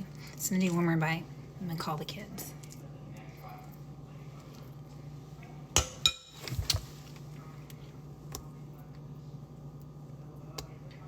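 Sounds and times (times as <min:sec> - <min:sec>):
steady low hum: 0:00.0 - 0:11.0
kitchenware clinking: 0:05.8 - 0:06.8.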